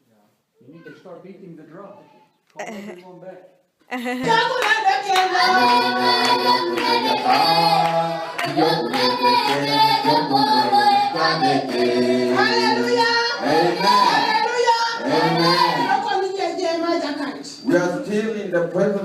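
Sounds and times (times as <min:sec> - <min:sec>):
group singing in harmony: 0:04.2 - 0:16.0.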